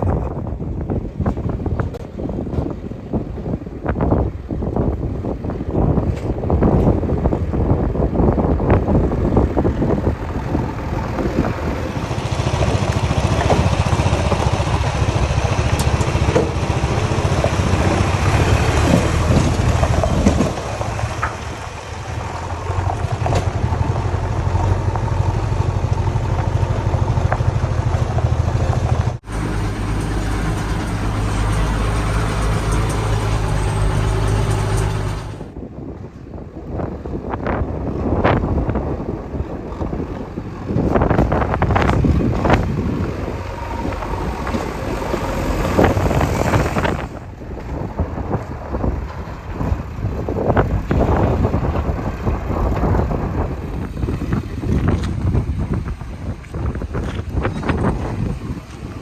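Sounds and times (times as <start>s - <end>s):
diesel engine running: 0.1s - 35.6s, 37.8s - 59.0s
knocks and clatter: 9.1s - 35.5s.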